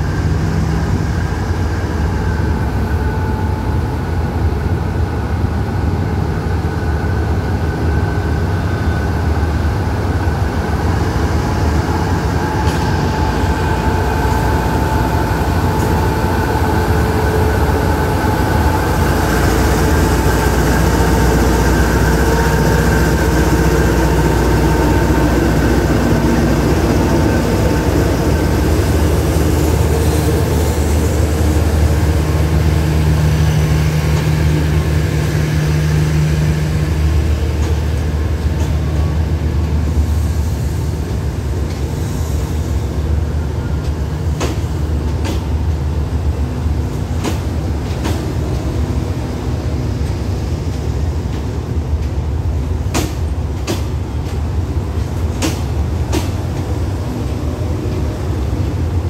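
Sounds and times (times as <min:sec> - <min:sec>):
locomotive engine running: 0:00.0 - 0:42.0
train coaches rolling on rails: 0:00.0 - 0:59.0.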